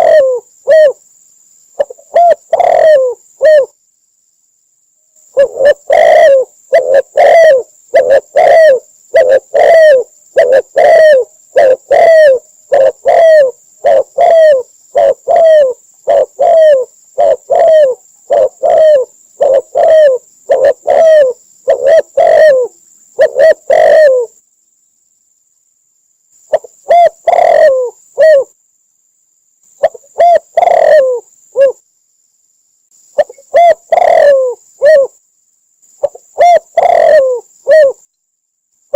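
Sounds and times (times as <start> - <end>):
dove cooing: 0.0 - 1.0, 1.8 - 3.8, 5.3 - 24.4, 26.5 - 28.5, 29.8 - 31.8, 33.2 - 35.2, 36.0 - 38.0.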